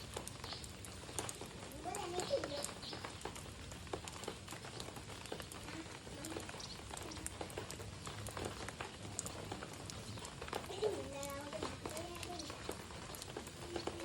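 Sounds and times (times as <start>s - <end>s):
birds chipping and ticking: 0.0s - 14.0s
faint voices: 1.4s - 2.9s, 5.4s - 14.0s.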